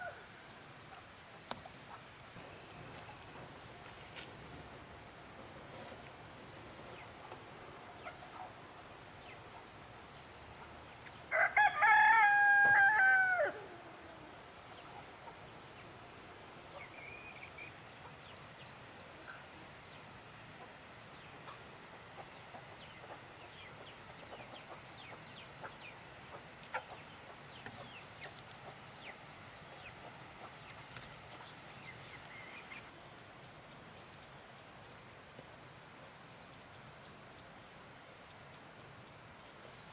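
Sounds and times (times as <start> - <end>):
rapid insect chirping: 0.0 - 39.9
rooster crowing: 11.3 - 14.3.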